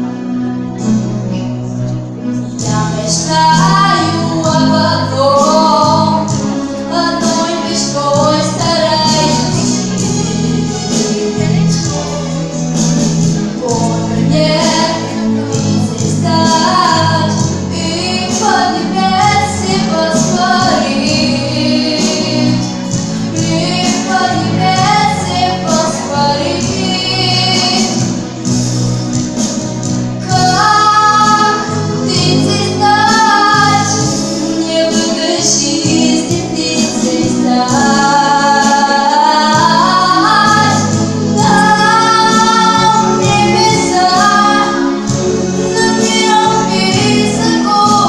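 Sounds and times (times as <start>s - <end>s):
instrumental backing with bass: 0.0s - 48.0s
woman singing: 2.6s - 10.2s, 13.6s - 28.2s, 30.2s - 48.0s.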